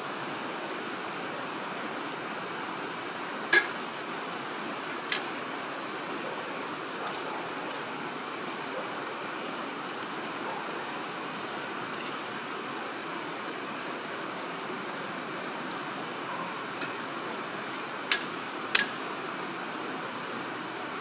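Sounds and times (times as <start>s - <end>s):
fire crackles: 1.6s - 19.0s.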